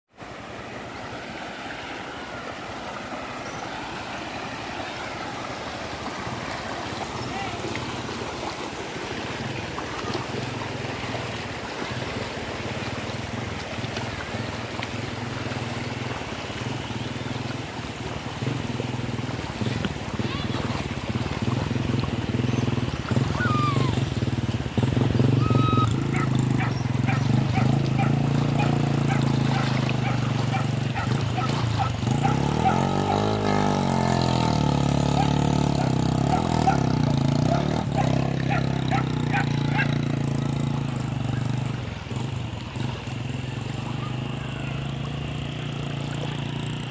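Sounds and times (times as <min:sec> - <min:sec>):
rushing river water: 0:00.1 - 0:46.9
vehicle engine running: 0:03.7 - 0:46.9.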